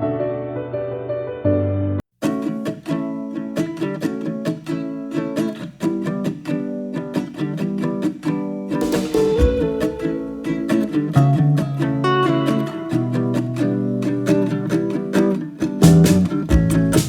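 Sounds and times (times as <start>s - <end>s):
plucked string music: 2.2s - 17.0s
background music: 8.8s - 11.6s.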